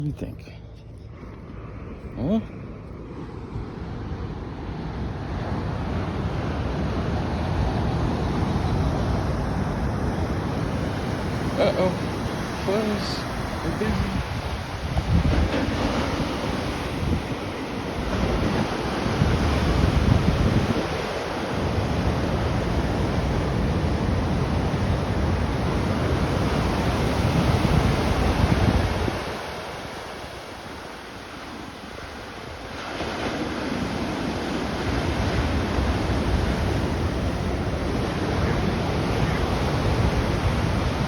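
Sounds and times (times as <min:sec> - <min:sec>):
wind buffeting microphone: 0:01.1 - 0:30.8
ocean surf: 0:01.1 - 0:41.0.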